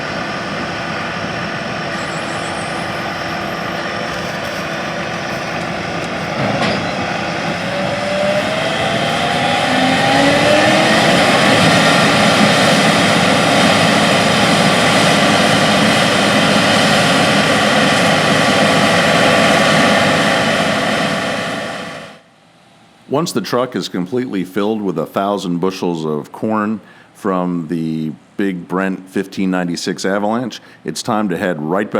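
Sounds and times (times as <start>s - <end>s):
dense rushing noise: 0.0s - 22.2s
diesel engines under load: 0.0s - 31.9s.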